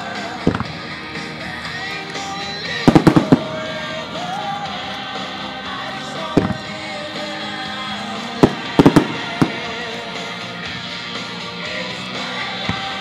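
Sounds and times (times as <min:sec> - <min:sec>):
music over loudspeakers: 0:00.0 - 0:13.0
firework shells bursting: 0:02.9 - 0:03.7, 0:08.4 - 0:09.9.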